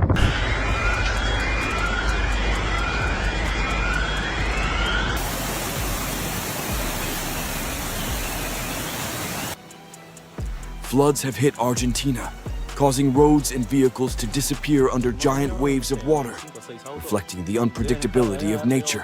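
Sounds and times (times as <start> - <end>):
storm rushing noise: 0.0 - 9.6
short rising whistles: 0.2 - 9.6.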